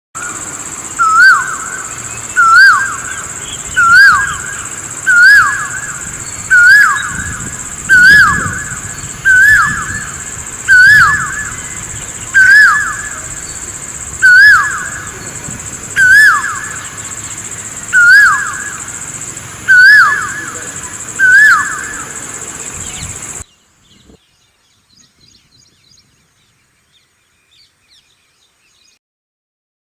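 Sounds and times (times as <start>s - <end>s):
bird repeating hooked call: 0.2s - 23.4s
steady high-pitched hiss: 0.2s - 29.0s.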